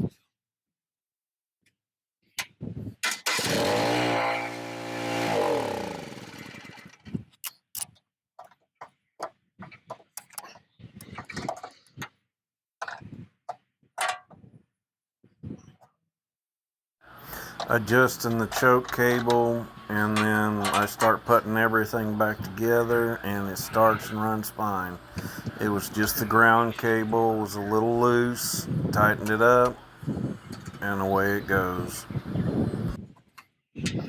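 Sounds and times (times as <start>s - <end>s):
small engine cranking and running: 3.0s - 7.1s, 17.1s - 33.0s.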